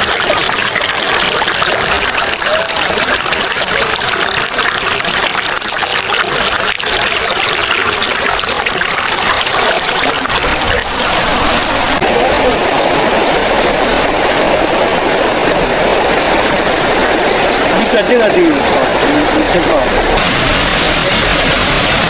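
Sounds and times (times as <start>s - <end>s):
waterfall rushing water: 9.1s - 22.0s
deep rumble: 18.8s - 22.0s.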